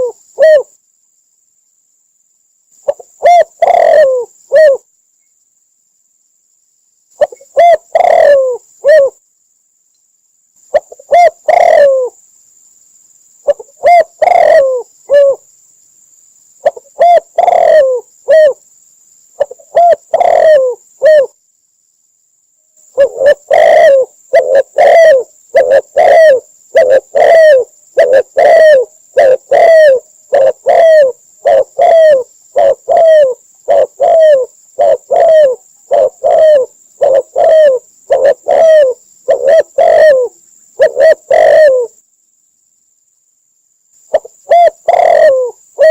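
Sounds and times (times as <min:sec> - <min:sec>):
dove cooing: 0:00.0 - 0:00.7, 0:02.8 - 0:04.9, 0:07.2 - 0:09.2, 0:10.7 - 0:12.2, 0:13.4 - 0:15.4, 0:16.6 - 0:18.6, 0:19.4 - 0:21.4, 0:22.9 - 0:42.0, 0:44.1 - 0:45.9.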